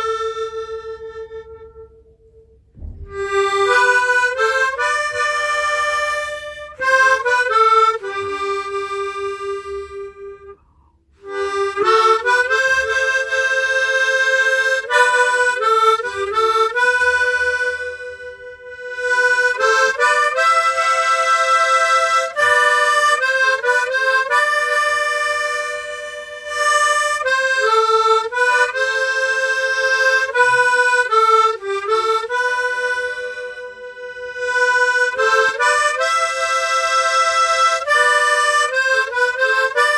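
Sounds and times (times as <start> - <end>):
tremolo harmonica melody: 0.0 - 39.9
player breathing: 10.6 - 11.2.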